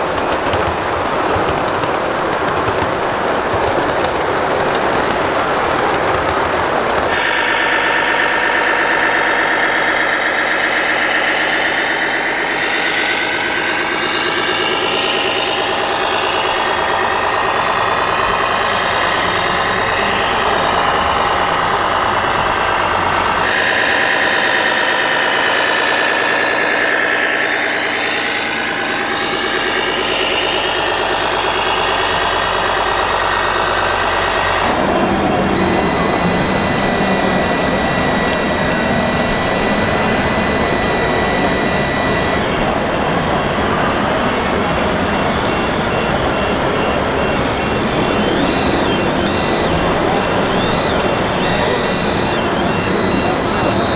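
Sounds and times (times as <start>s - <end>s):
toy machine engine-like drone: 0.0s - 53.9s.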